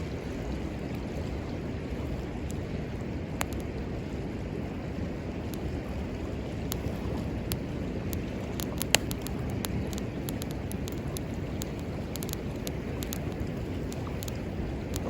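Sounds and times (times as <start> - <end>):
wood fire crackling and popping: 3.3 - 3.8, 4.7 - 15.0
river water rushing: 5.0 - 15.0.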